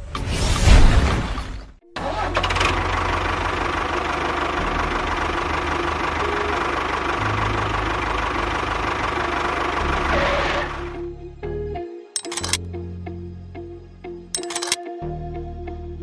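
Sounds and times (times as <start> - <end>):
engine running: 2.0 - 11.0.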